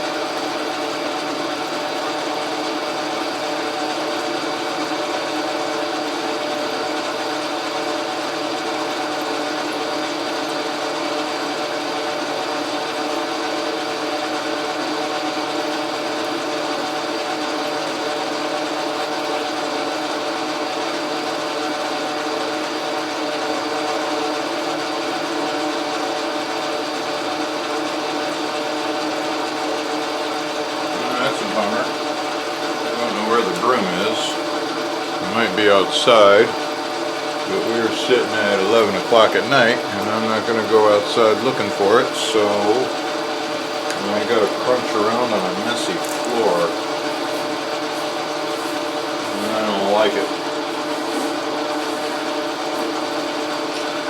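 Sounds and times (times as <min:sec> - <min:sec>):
metal lathe humming: 0:24.7 - 0:54.0.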